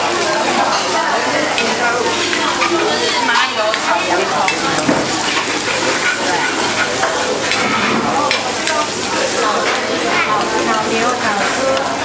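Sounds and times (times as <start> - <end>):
vegetables sizzling in a pot: 0.0 - 12.0
spatula scraping a pot: 2.1 - 8.8.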